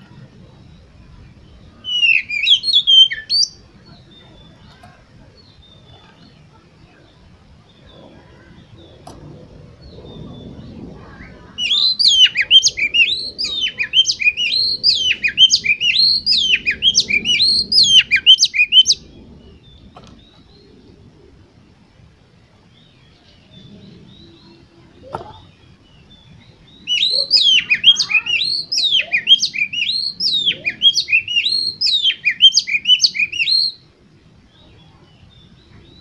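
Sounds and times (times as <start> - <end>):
bird singing whistled notes: 0.1 - 21.8, 22.7 - 33.9.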